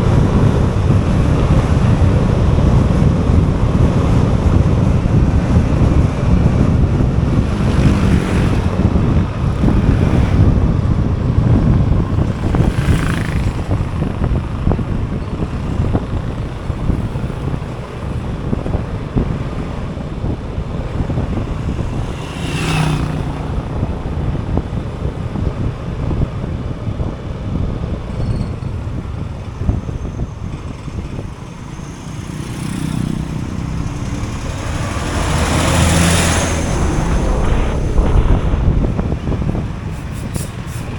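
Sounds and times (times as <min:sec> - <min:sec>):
motorbike engine: 0:00.0 - 0:40.9
wind buffeting microphone: 0:00.0 - 0:40.9
brief sweeping sounds: 0:35.8 - 0:40.9.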